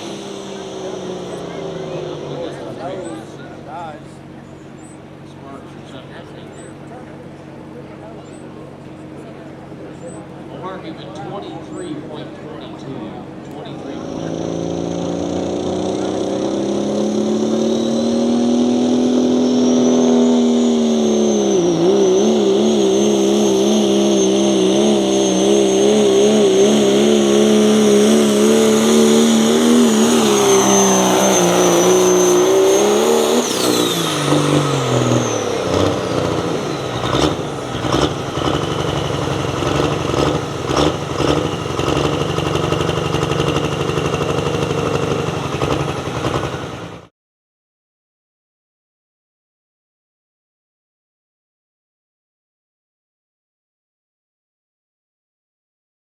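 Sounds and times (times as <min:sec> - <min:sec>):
engine at full throttle: 0:00.0 - 0:47.1
engine popping: 0:23.3 - 0:47.1.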